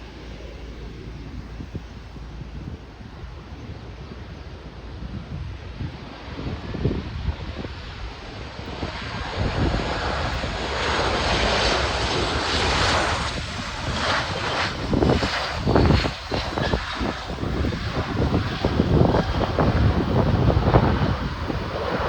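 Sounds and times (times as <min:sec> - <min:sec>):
jet engines passing: 0:00.0 - 0:22.0
wind buffeting microphone: 0:00.0 - 0:22.0.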